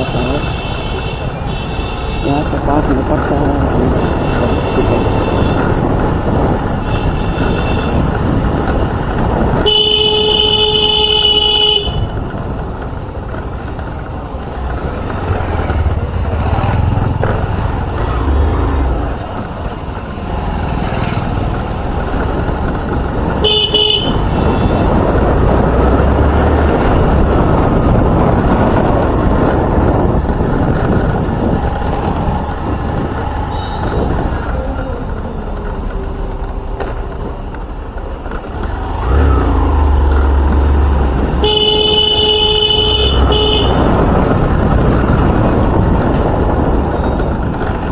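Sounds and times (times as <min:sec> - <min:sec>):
engine noise: 0:00.0 - 0:47.9
road noise: 0:00.0 - 0:47.9
wind noise: 0:00.0 - 0:47.9
vehicle horn honking: 0:04.0 - 0:05.7, 0:09.6 - 0:12.1, 0:23.4 - 0:25.0, 0:33.5 - 0:34.1, 0:41.4 - 0:43.9.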